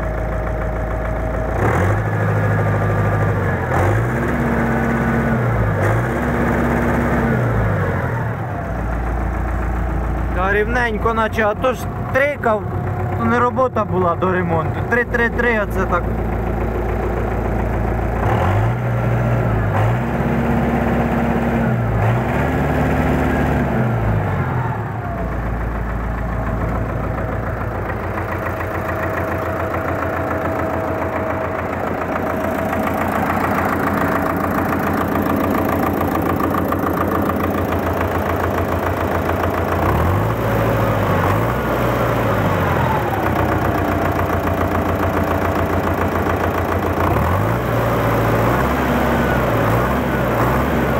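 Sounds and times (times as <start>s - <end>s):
diesel engine revving and idling: 0.0s - 50.9s.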